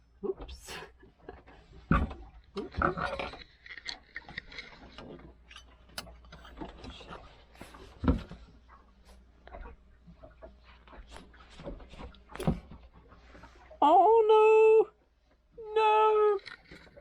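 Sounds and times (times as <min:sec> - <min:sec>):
air fryer basket clicking and scraping: 0:05.9 - 0:07.1.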